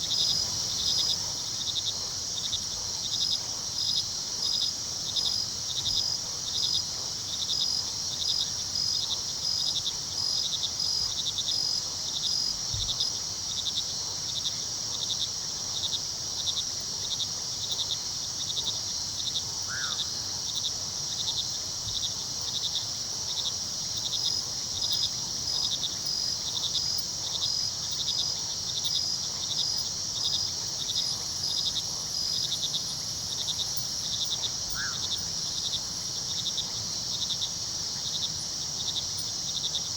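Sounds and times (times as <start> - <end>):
cricket chirping in even pulse: 0.0 - 12.9, 16.5 - 39.9
crickets trilling: 0.0 - 39.9.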